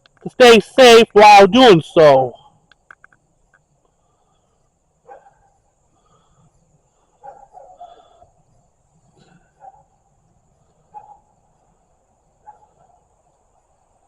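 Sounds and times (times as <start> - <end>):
distant animal calls: 4.0 - 8.4.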